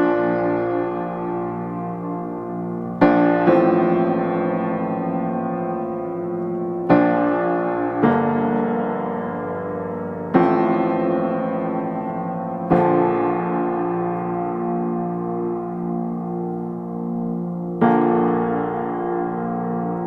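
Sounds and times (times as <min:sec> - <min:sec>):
slow calm piano music: 0:00.0 - 0:20.0.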